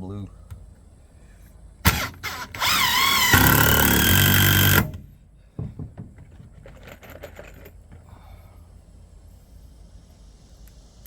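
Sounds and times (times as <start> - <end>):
power drill motor whine: 1.9 - 5.0
light knocks: 5.6 - 6.7.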